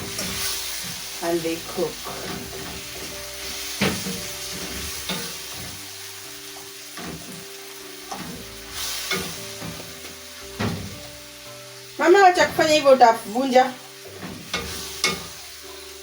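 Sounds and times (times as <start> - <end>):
spoon scraping and knocking pan: 0.0 - 1.1, 1.8 - 5.9, 6.9 - 11.3, 14.0 - 15.9
tomatoes sizzling in oil: 0.0 - 16.0.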